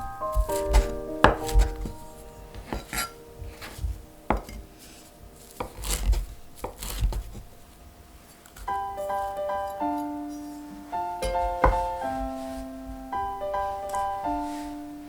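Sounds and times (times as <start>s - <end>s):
piano music: 0.0s - 15.0s
knife cutting on cutting board: 0.3s - 4.6s, 5.5s - 7.4s.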